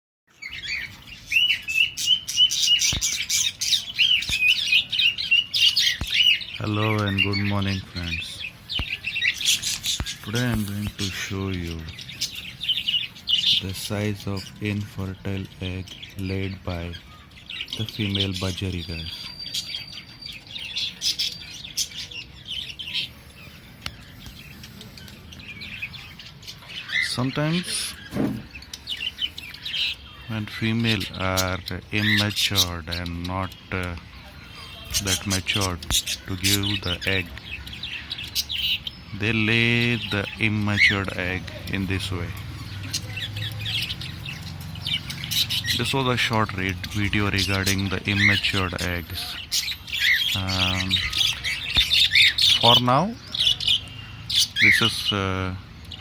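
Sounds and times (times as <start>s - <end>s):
budgerigars chirping and chattering: 0.3s - 56.0s.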